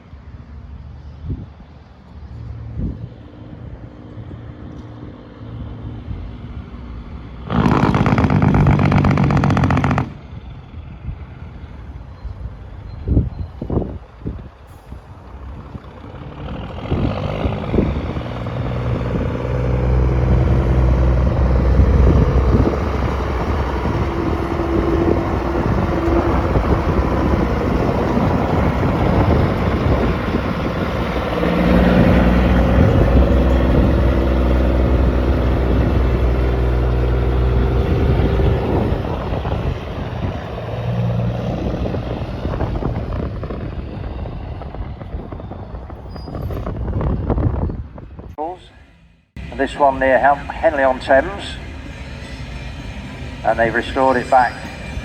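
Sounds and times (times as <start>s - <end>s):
diesel truck engines passing: 0.0s - 48.6s, 49.4s - 55.0s.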